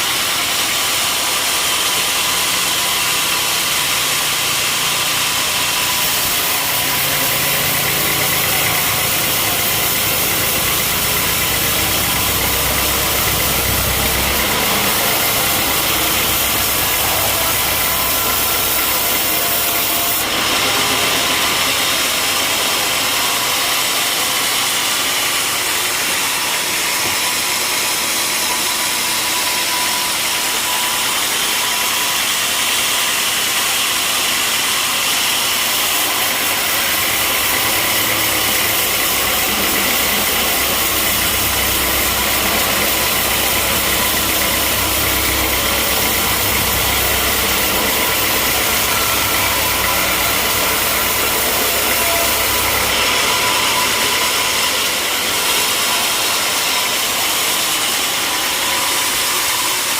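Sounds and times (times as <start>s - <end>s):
sawmill mechanical drone: 0.0s - 59.9s
high hiss: 36.0s - 57.3s.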